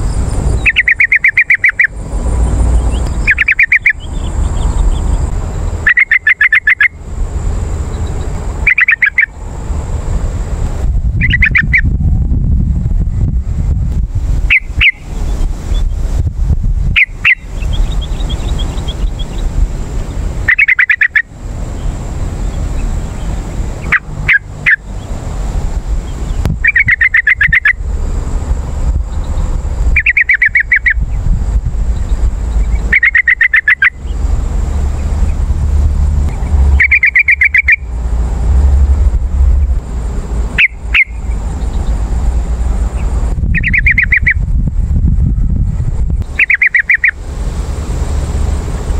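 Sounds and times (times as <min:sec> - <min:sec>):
steady low rumble: 0:00.0 - 0:48.9
bird singing bubbling phrases: 0:00.5 - 0:07.0, 0:08.0 - 0:09.3, 0:11.2 - 0:11.9, 0:14.5 - 0:16.0, 0:17.0 - 0:19.5, 0:20.1 - 0:25.1, 0:26.0 - 0:27.8, 0:30.0 - 0:31.0, 0:32.0 - 0:34.2, 0:36.6 - 0:37.9, 0:40.6 - 0:42.0, 0:43.5 - 0:44.4, 0:46.2 - 0:47.2.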